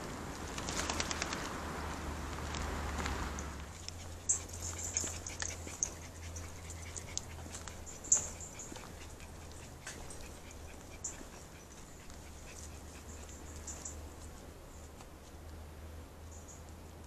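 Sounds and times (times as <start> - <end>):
birds chirping: 3.4 - 14.4.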